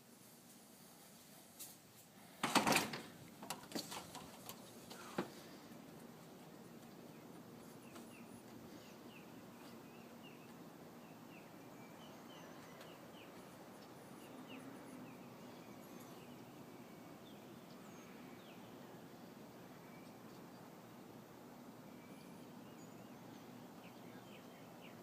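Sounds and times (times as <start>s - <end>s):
steady low hiss: 0.0s - 25.0s
faint bird chirping: 6.4s - 25.0s.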